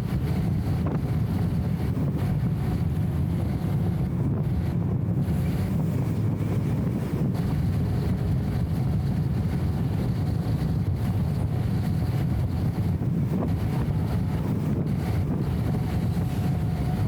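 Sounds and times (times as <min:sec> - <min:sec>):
muffled car engine rumble: 0:00.0 - 0:17.0
road noise: 0:00.0 - 0:17.0.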